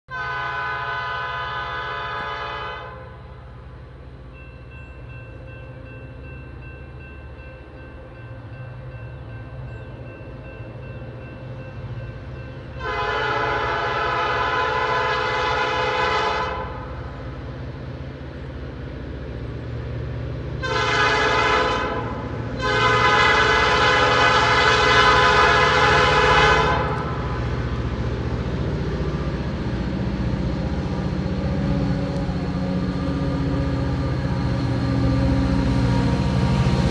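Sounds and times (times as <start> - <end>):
train horn chime blasts: 0.1 - 3.6, 4.3 - 17.2, 20.6 - 27.4
low locomotive rumble: 0.1 - 36.9.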